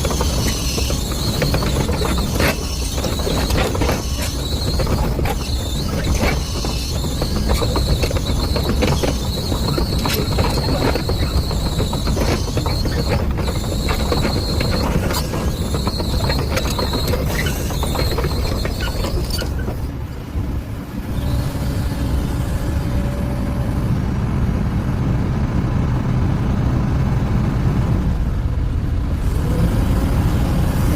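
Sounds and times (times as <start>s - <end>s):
steel tracks clattering and squealing: 0.0s - 20.2s
excavator engine running: 0.0s - 25.3s.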